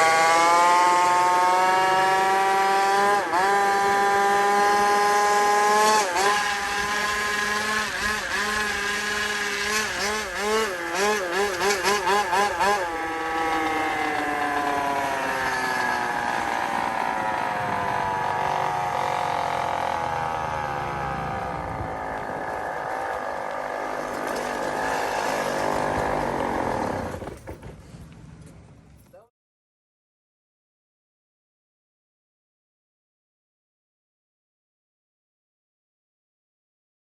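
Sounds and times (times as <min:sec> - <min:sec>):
small motorbike engine revving: 0:00.0 - 0:27.6.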